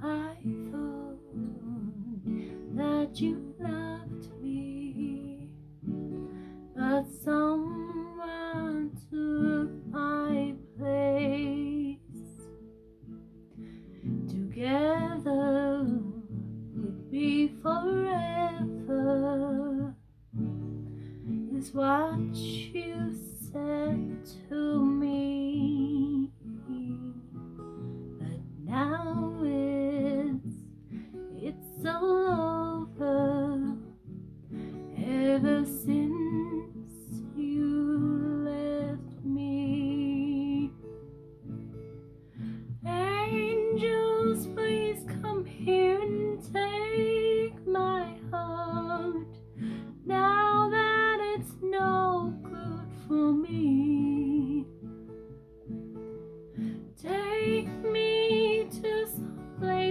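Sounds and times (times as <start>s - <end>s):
woman singing a slow ballad: 0.0s - 12.6s, 14.1s - 20.0s, 21.4s - 41.1s, 42.8s - 54.9s, 56.6s - 59.9s
strummed and plucked guitar: 0.0s - 59.9s.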